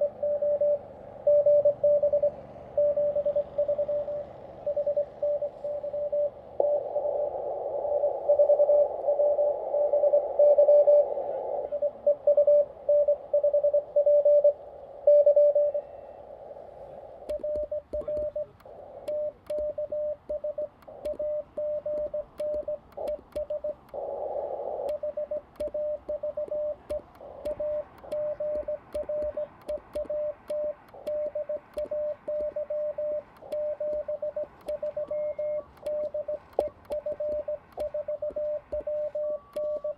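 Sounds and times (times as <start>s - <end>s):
morse code tone: 0.0s - 16.2s, 17.2s - 24.0s, 24.8s - 39.9s
receiver hiss: 0.0s - 39.9s
faint sharp clicks: 17.2s - 24.0s, 24.8s - 39.9s.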